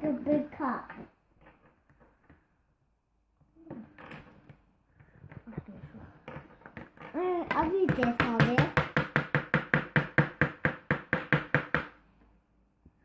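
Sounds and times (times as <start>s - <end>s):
plastic toys clicking and tapping: 6.2s - 12.0s.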